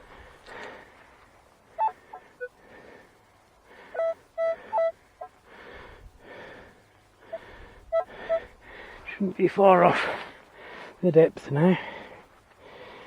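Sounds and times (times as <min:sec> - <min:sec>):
person breathing hard: 0:00.0 - 0:09.1, 0:10.0 - 0:11.0, 0:11.8 - 0:13.0.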